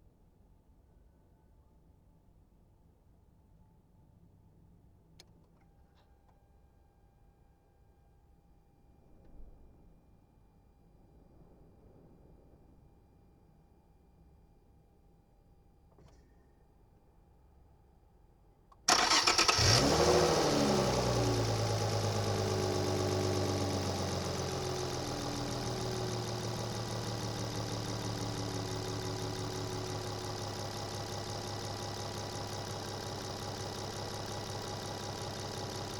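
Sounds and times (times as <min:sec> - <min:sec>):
car engine starting and idling: 0:18.9 - 0:35.9.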